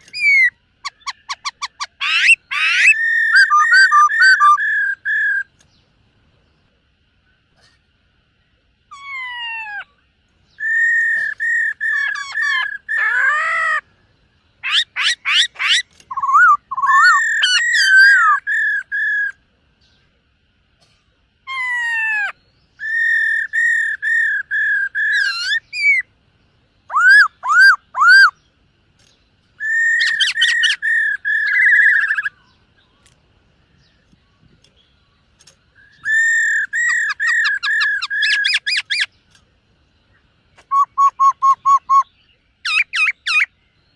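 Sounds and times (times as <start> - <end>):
laughingthrush singing: 8.6 - 19.6, 20.8 - 28.4, 29.6 - 32.8, 35.9 - 39.3.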